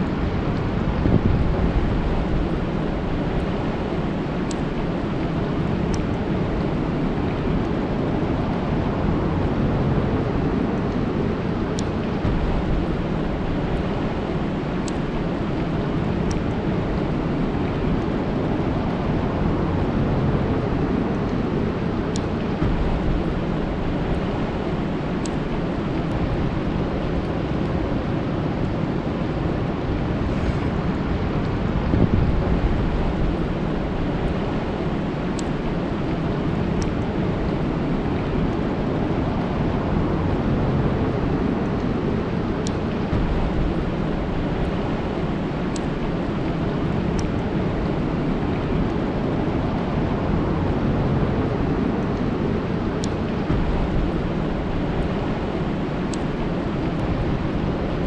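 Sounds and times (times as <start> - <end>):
rain falling on a lake: 0.0 - 30.1, 31.0 - 58.0
faint high ticks: 14.8 - 16.5, 45.6 - 49.0.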